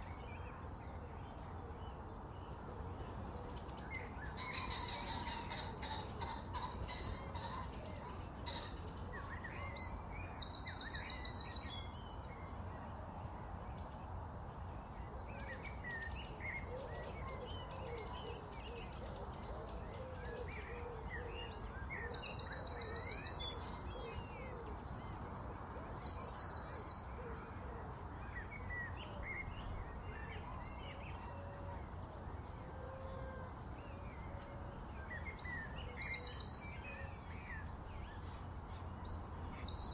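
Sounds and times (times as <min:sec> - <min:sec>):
birds chirping and calling: 0:00.0 - 0:12.2, 0:15.4 - 0:33.0
background hiss: 0:21.3 - 0:39.9.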